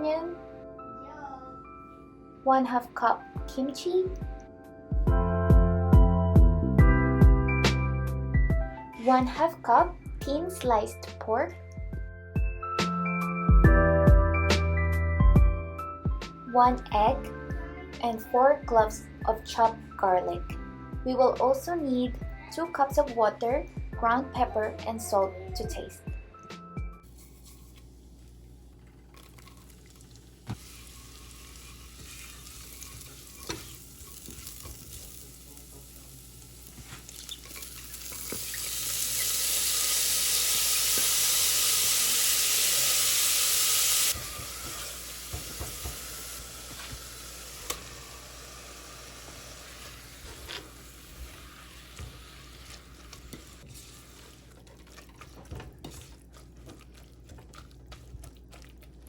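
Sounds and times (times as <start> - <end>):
food sizzling in a pot: 27.0 - 28.5, 29.1 - 54.5
stirring clicks: 52.6 - 59.0.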